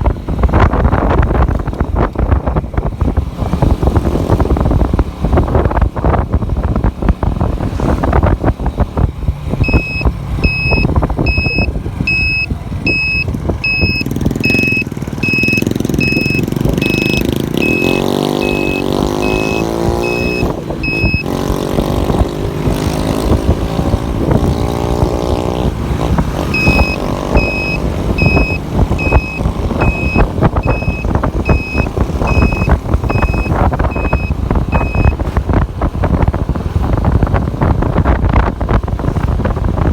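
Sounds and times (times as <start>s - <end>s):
motorcycle road noise: 0.0s - 39.9s
wind buffeting microphone: 0.0s - 39.9s
electronic beeper: 9.6s - 21.3s, 26.6s - 35.2s
engine pitch rising and falling: 9.6s - 21.4s, 22.2s - 35.4s.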